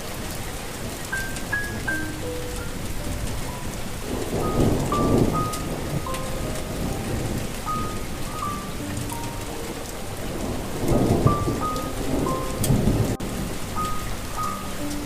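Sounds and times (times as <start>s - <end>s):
low thunder rumbles: 0.0s - 15.0s
slow soft melody: 0.0s - 15.0s
steady rain falling: 0.0s - 15.0s.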